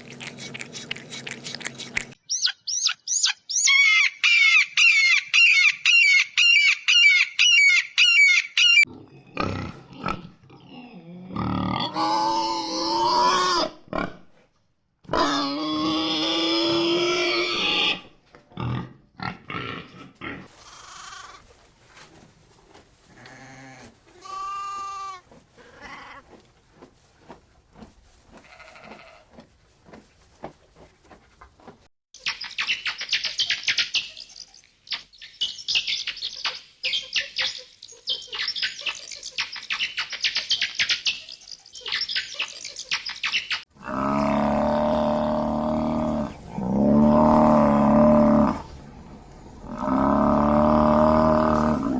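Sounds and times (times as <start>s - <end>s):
farm animals calling: 0.0s - 13.8s, 15.1s - 21.4s, 32.3s - 51.9s.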